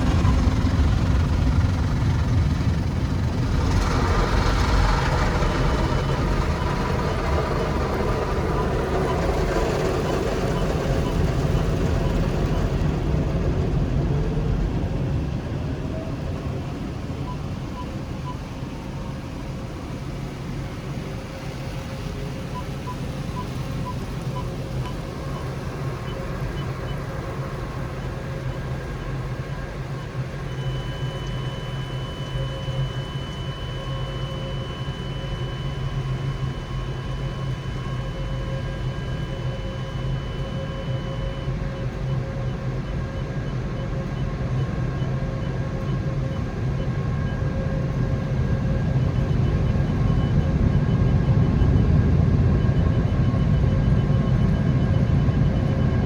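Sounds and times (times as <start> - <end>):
car wash machinery drone: 0.0 - 56.0
faint steady tones: 0.0 - 56.0
high mechanical whine: 0.0 - 56.0.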